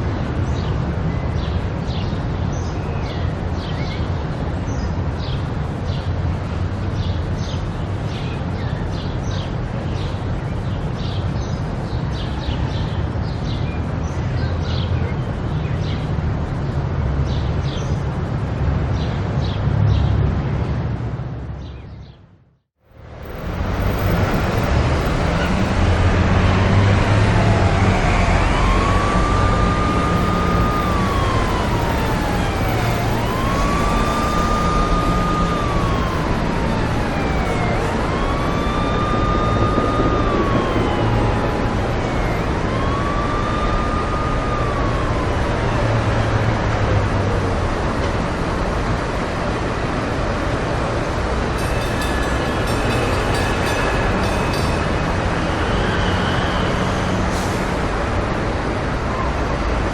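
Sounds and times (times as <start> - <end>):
road traffic noise: 0.0 - 59.9
emergency vehicle siren wailing: 22.9 - 59.9.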